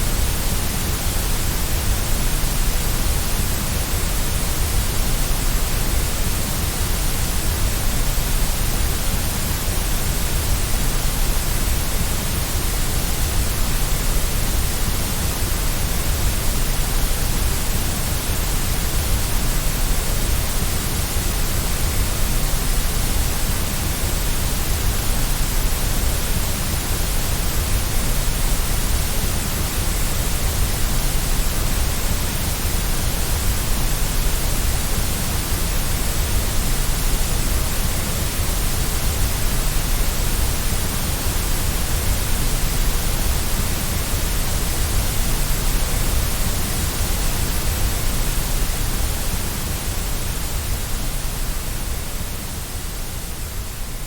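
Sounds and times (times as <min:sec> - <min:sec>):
white noise hiss: 0:00.0 - 0:54.0.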